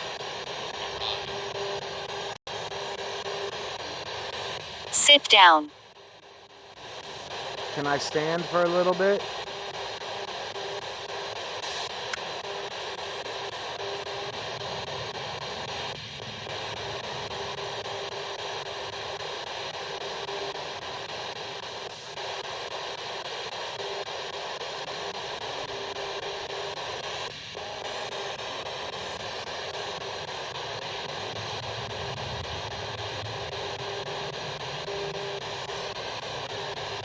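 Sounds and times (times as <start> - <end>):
radio static hiss: 0.6 - 2.2, 5.0 - 5.7, 7.5 - 10.2.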